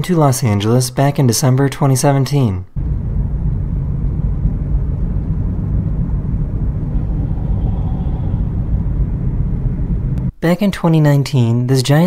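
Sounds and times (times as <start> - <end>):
car road and engine rumble: 2.8 - 10.3.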